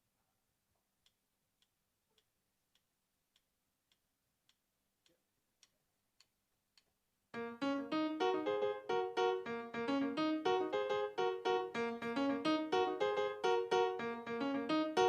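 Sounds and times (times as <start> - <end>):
faint steady ticks: 1.0 - 7.0
electric piano chords: 7.4 - 15.0.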